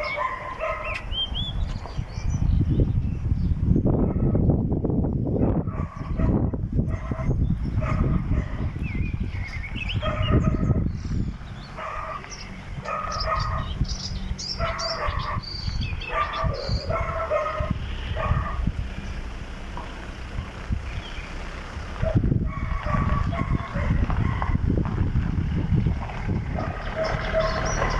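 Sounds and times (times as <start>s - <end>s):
dog barking: 0.0s - 1.0s, 4.0s - 4.4s, 5.4s - 8.7s, 10.0s - 10.8s, 11.8s - 13.8s, 14.6s - 18.7s, 22.0s - 24.6s, 26.5s - 27.9s
low rumble: 17.6s - 27.9s.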